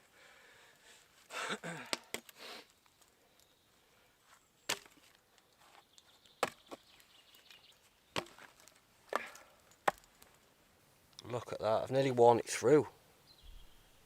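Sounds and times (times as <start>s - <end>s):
firewood being chopped: 4.7s - 5.0s, 6.4s - 7.0s, 8.1s - 10.3s.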